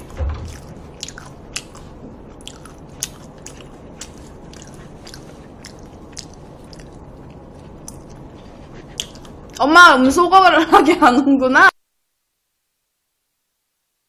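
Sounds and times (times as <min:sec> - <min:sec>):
low thump: 0:00.0 - 0:01.3
wet chewing clicks and smacks: 0:00.5 - 0:09.6.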